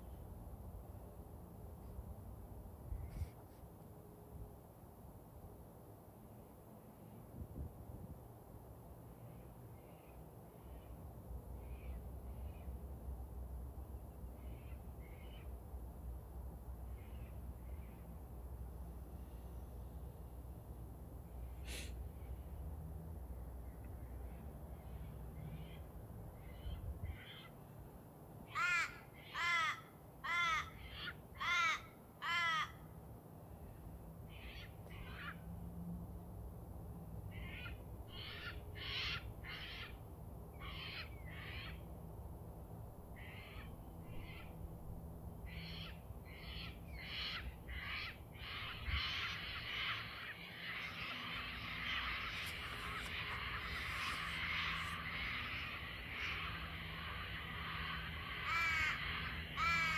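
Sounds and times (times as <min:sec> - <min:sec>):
low background hum: 0:00.0 - 0:59.9
loud bird calls: 0:24.2 - 0:27.6, 0:28.5 - 0:32.8, 0:34.3 - 0:35.4, 0:37.3 - 0:41.9, 0:43.2 - 0:44.6, 0:45.5 - 0:59.9
birds chattering: 0:45.6 - 0:59.9.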